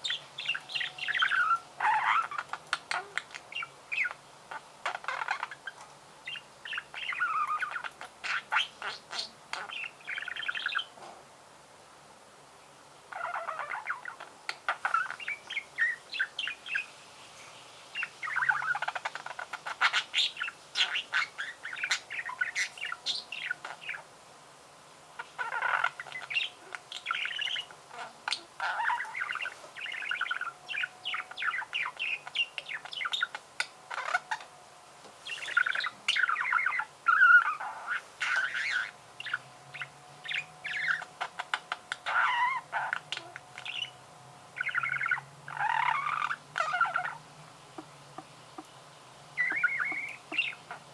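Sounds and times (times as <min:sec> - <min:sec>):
budgerigar warbling: 0:25.2 - 0:34.4, 0:35.4 - 0:43.9, 0:44.6 - 0:47.2, 0:49.4 - 0:50.9.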